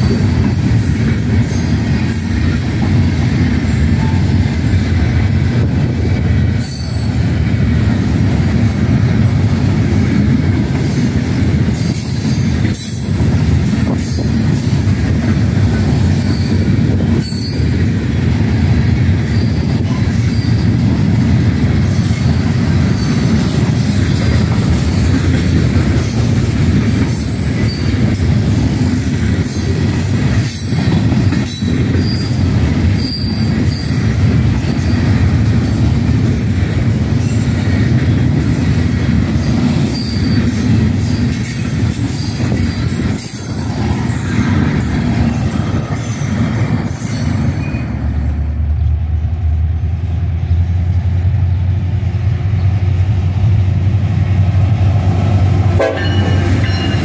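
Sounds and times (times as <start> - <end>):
diesel locomotives rumbling: 0.0 - 57.0
freight cars rumbling on rail: 0.0 - 57.0
high wheel squeals: 6.5 - 7.2, 16.0 - 18.0, 19.2 - 21.0, 27.3 - 28.2, 30.5 - 35.8, 39.6 - 43.5, 44.3 - 48.3.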